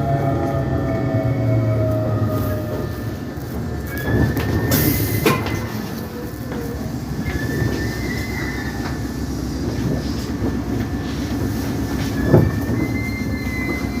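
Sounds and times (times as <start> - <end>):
train wheels rumbling on rail: 0.0 - 14.0
high wheel squeal: 3.8 - 9.3, 11.6 - 14.0.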